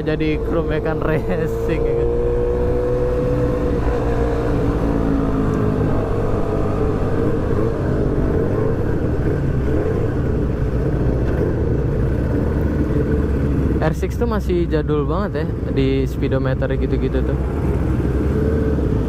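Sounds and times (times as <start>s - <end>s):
motorcycle engine running: 0.0s - 14.1s.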